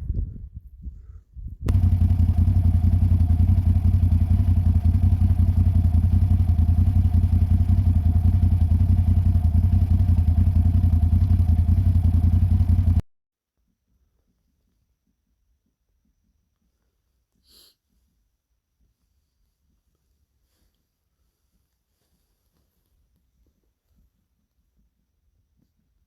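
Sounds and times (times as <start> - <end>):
engine running with low throb: 1.7 - 13.0.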